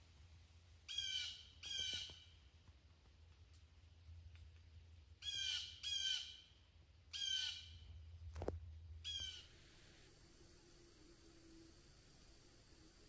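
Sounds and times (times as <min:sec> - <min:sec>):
bird calling: 0:05.2 - 0:06.4, 0:07.1 - 0:07.7, 0:09.0 - 0:09.6.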